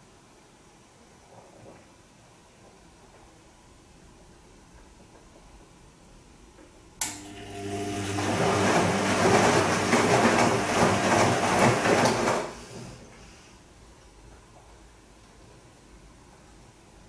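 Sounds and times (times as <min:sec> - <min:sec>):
washing machine click: 0:07.0 - 0:13.2
washing machine drum motor humming: 0:07.0 - 0:13.5
water and laundry sloshing: 0:07.4 - 0:13.5.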